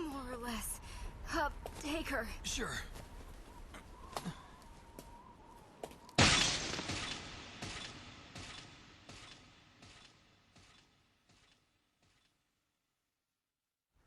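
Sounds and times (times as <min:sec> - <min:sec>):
loud shattering crash: 0:06.2 - 0:09.8.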